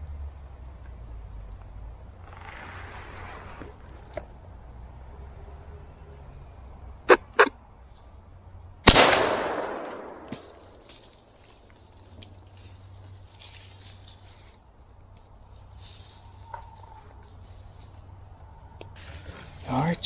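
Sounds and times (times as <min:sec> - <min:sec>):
gunshot: 0:08.9 - 0:10.6.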